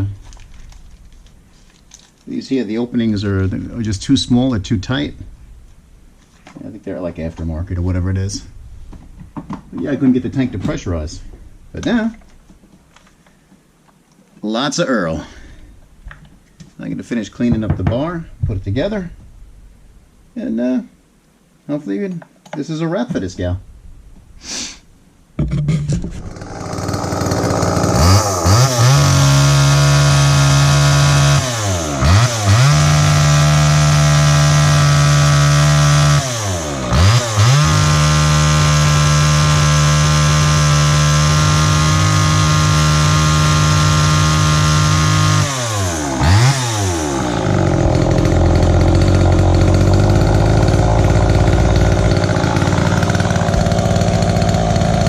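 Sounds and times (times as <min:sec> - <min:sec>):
chainsaw engine revving: 0:26.1 - 0:55.0.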